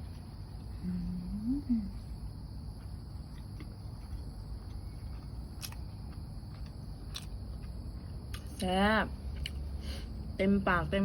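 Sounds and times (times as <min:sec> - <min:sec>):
crickets chirring: 0:00.0 - 0:11.0
person humming: 0:00.8 - 0:02.0
person chewing: 0:02.7 - 0:08.6, 0:09.2 - 0:09.8.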